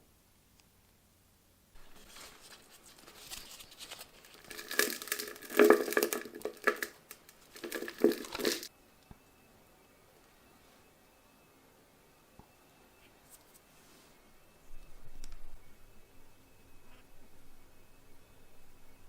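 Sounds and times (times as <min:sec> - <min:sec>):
crinkly rustling and crumpling: 0:01.8 - 0:08.7.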